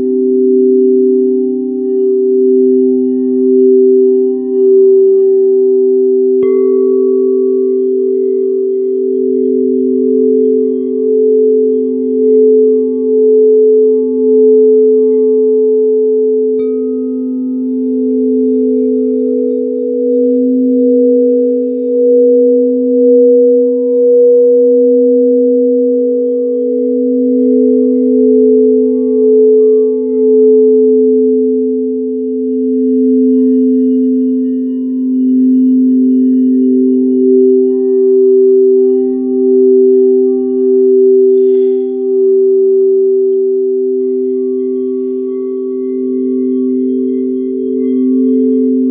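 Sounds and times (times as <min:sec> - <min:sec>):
low singing bowl tones: 0:00.0 - 0:48.9
higher singing bowl struck: 0:39.8 - 0:48.9
high rustling shimmer: 0:41.2 - 0:42.8.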